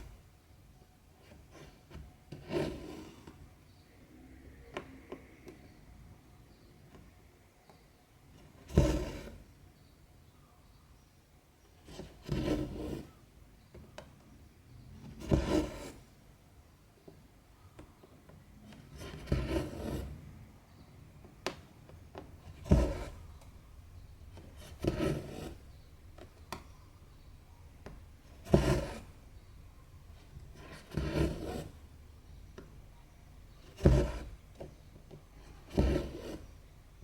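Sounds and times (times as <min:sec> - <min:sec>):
thread rasping through fabric: 0:28.2 - 0:29.2.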